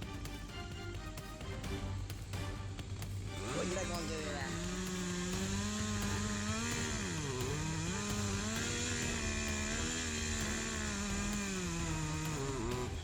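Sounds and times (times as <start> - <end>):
chainsaw running at high revs: 2.7 - 13.0.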